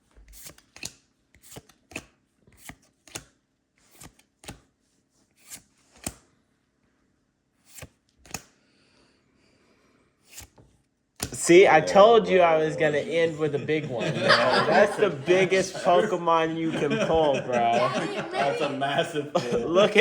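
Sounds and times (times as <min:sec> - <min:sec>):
trading cards snapping: 0:00.4 - 0:04.7, 0:05.4 - 0:06.2, 0:07.7 - 0:08.6.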